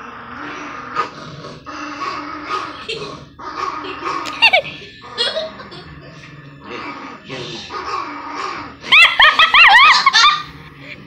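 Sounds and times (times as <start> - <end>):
dog growling: 0.0 - 11.0
dog whining: 6.7 - 10.5.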